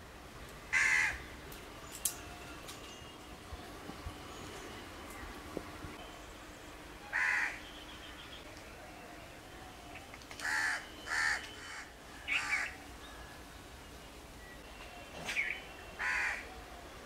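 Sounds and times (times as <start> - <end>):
harsh bird cawing: 0.7 - 1.3, 7.1 - 8.3, 10.4 - 13.4, 15.4 - 16.6.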